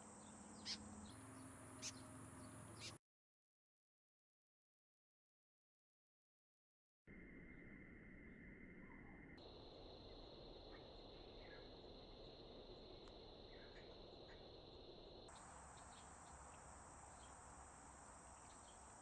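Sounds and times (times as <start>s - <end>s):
high-pitched insect drone: 9.4s - 19.0s.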